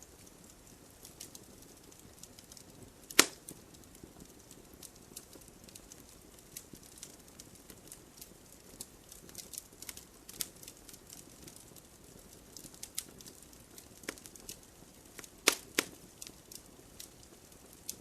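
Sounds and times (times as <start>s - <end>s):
campfire crackling: 0.0s - 18.0s
loud sharp pop of fire: 3.1s - 3.5s, 15.2s - 16.0s.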